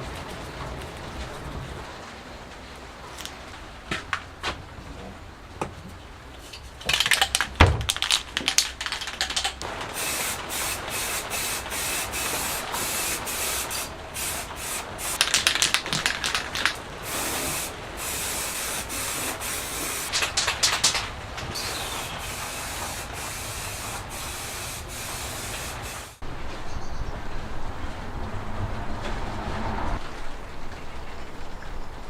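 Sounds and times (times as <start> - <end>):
spray can rattling: 6.8 - 26.2
aerosol spraying hiss: 9.7 - 26.2.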